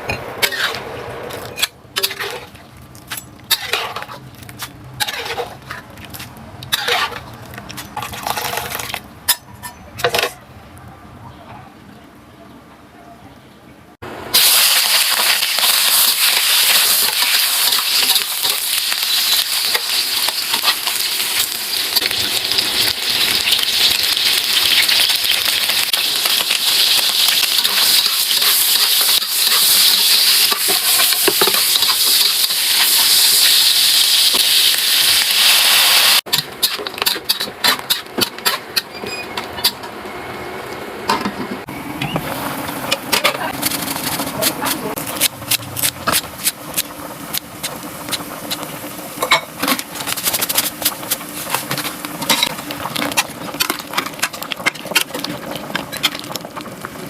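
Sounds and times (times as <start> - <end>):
food sizzling in hot oil: 14.3 - 38.0, 43.5 - 57.0.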